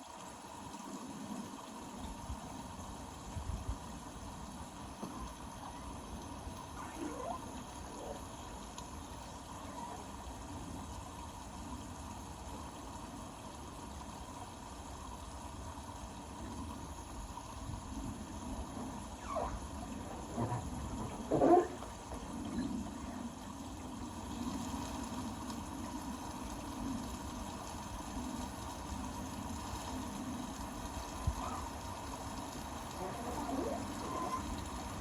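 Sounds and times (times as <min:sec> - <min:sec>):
water gurgles: 0:00.0 - 0:35.0
washing machine hum: 0:17.0 - 0:25.2, 0:27.5 - 0:35.0
water sloshing in washing machine: 0:18.6 - 0:23.3, 0:30.9 - 0:35.0.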